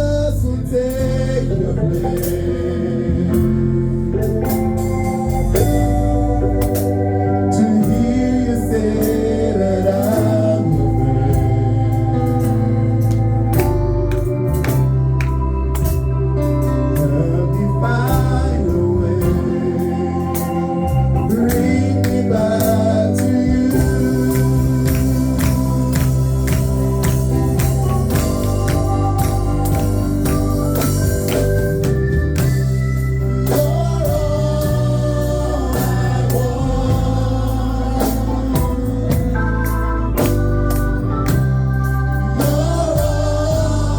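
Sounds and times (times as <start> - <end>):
bass: 0.0 - 43.9
organ chords: 0.0 - 43.9
drums: 0.3 - 7.2, 9.0 - 43.9
person singing: 16.9 - 26.4, 33.4 - 43.9.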